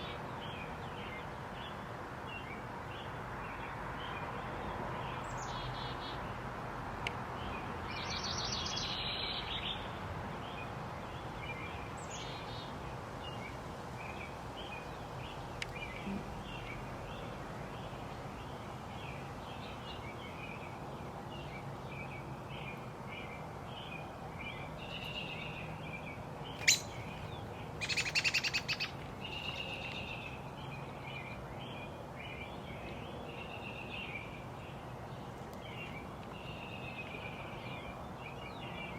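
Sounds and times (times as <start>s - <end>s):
low background noise: 0.0s - 38.9s
songbirds chirping: 0.0s - 38.9s
bird trilling: 26.6s - 29.9s.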